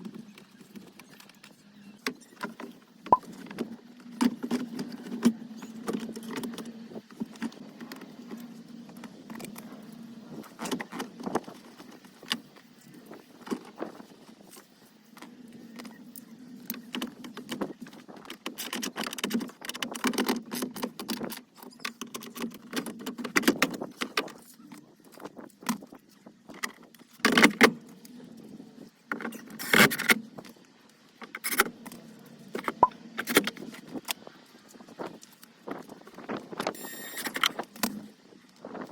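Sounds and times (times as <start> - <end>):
parts clicking and rattling: 13.4 - 28.1.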